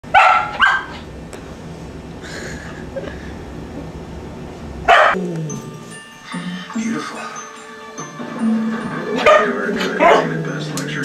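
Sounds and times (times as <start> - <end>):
steady low hum: 0.9 - 7.2
animal cries: 8.0 - 11.0.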